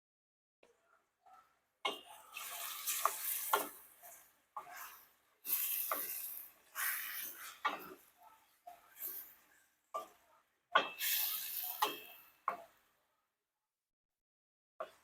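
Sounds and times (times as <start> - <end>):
chicken sizzling in hot oil: 1.9 - 8.0, 8.9 - 9.6, 10.8 - 12.6.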